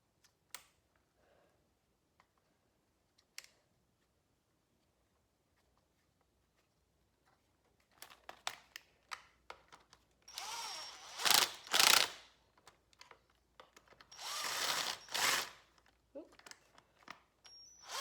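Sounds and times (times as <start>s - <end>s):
ratchet wrench clicking: 10.4s - 12.2s.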